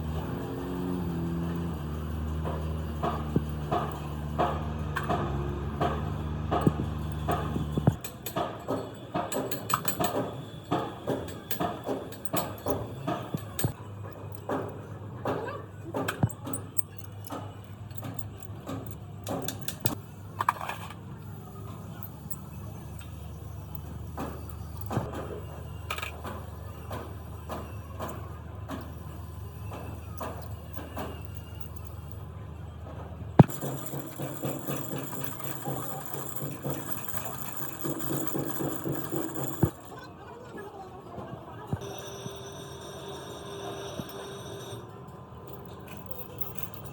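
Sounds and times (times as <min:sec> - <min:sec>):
metal parts clicking and knocking: 0:00.0 - 0:40.1, 0:45.4 - 0:46.9
metal clatter: 0:32.9 - 0:40.1.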